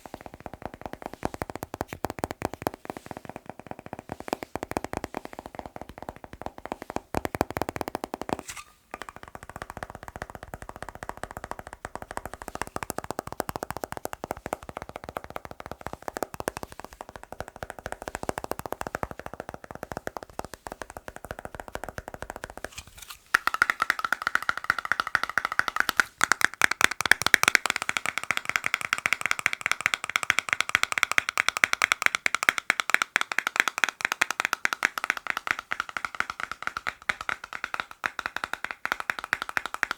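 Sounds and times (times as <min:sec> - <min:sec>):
fingers tapping on hard objects: 0:00.0 - 0:39.9.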